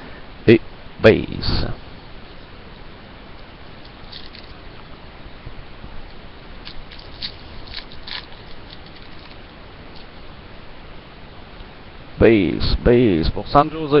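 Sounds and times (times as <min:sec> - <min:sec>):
steady background hiss: 0:00.0 - 0:14.0
small sharp crackles and clicks: 0:03.3 - 0:04.6, 0:06.0 - 0:10.2.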